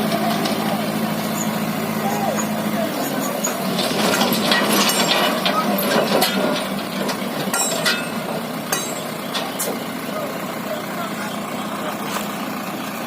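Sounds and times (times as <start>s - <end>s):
engine humming: 0.0s - 13.0s
sharp metallic clinks and knocks: 3.2s - 9.8s.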